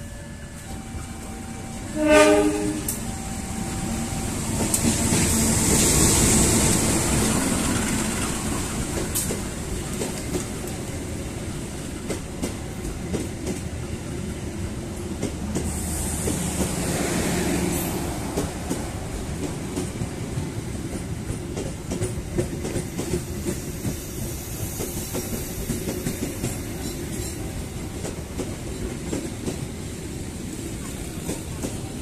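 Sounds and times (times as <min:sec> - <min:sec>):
diesel locomotive rumbling past: 0:00.0 - 0:32.0
locomotive horn blast: 0:00.6 - 0:03.6.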